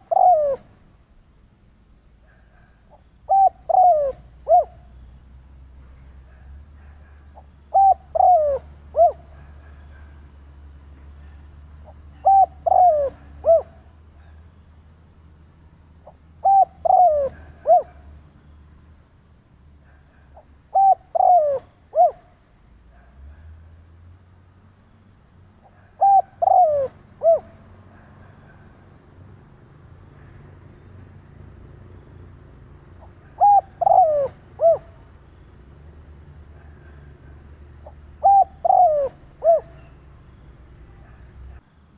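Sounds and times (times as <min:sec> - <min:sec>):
dove cooing: 0:00.0 - 0:00.7, 0:02.3 - 0:04.9, 0:06.3 - 0:10.2, 0:12.1 - 0:14.4, 0:16.0 - 0:18.0, 0:19.8 - 0:22.3, 0:25.6 - 0:28.6, 0:33.0 - 0:35.0, 0:36.5 - 0:40.1.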